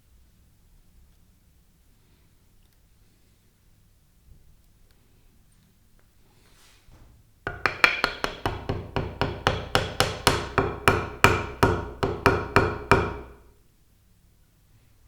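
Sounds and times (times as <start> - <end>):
hammer tapping with short ring: 7.5 - 13.4.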